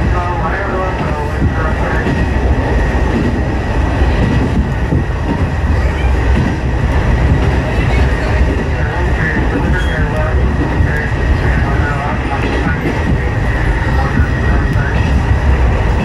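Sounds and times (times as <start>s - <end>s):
train engine and wheels rumbling: 0.0s - 16.0s.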